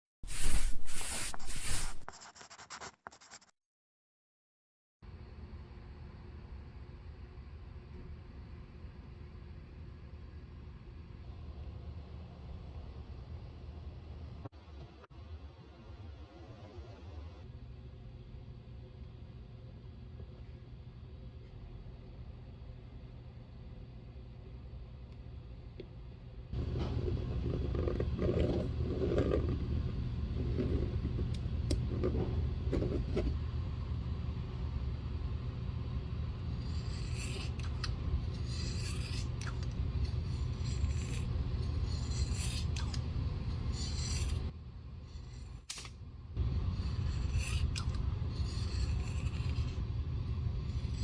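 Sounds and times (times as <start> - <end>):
scraping on leather boot: 0.2 - 3.5
steady low hum: 17.2 - 51.0.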